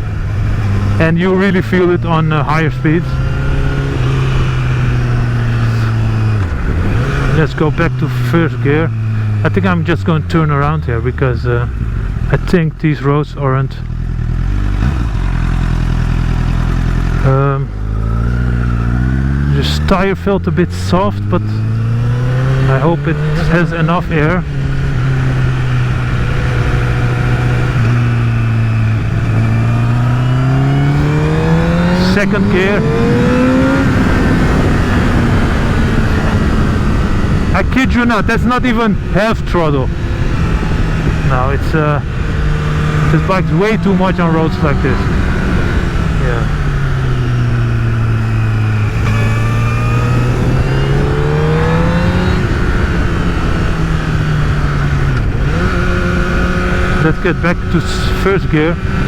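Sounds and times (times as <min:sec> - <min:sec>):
riding wind rush: 0:00.0 - 0:12.4, 0:20.9 - 0:59.0
motorcycle engine accelerating: 0:00.0 - 0:59.0.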